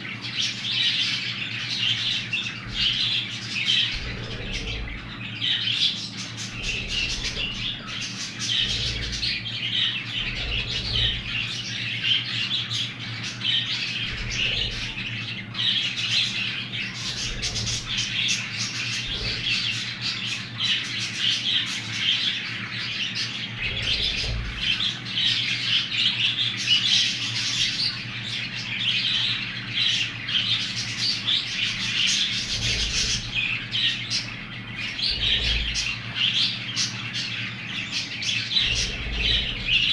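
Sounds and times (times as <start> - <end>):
bird chicks chirping and squawking: 0.0 - 39.9
low hum: 2.4 - 12.2, 12.9 - 20.2.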